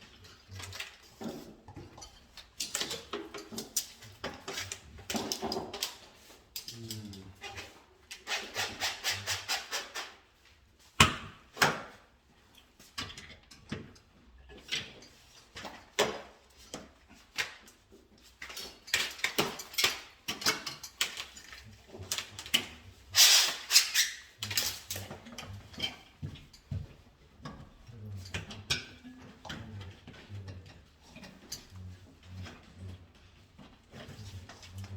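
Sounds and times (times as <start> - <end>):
hand tool scraping strokes: 8.2 - 10.2, 23.1 - 24.3.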